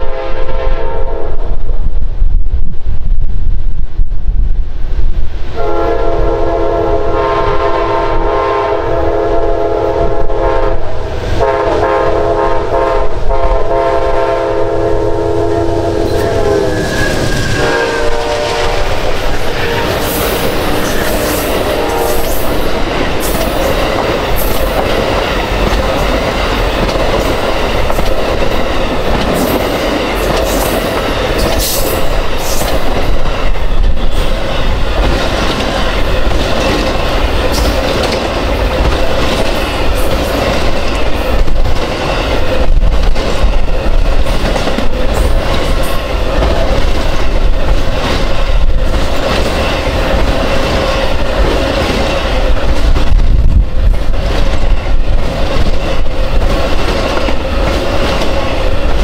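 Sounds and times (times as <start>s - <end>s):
train air horn blasts: 0.0s - 1.5s, 5.6s - 22.6s
train wheels clattering over rail joints: 16.9s - 59.0s.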